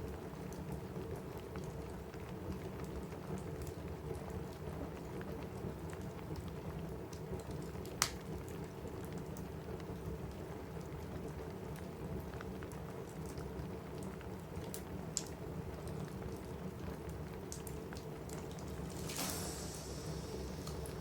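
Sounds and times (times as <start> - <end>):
rain on a roof: 0.0 - 21.0
wood fire crackling: 1.2 - 21.0
fire pop: 18.3 - 21.0.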